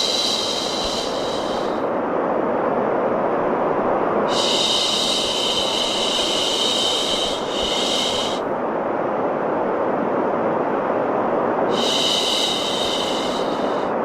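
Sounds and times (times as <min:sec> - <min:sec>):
low rushing noise: 0:00.0 - 0:14.0
person shushing: 0:04.3 - 0:08.4.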